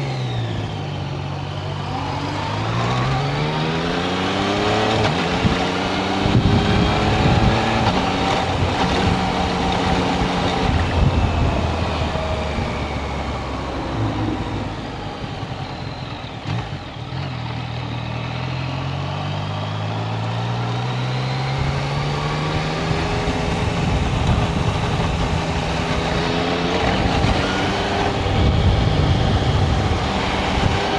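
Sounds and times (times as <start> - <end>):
wind rush: 4.4 - 16.0, 21.5 - 30.9.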